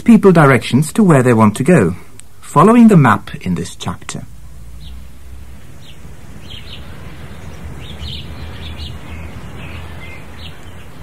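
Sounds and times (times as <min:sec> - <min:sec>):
birds chirping: 0:00.2 - 0:11.0.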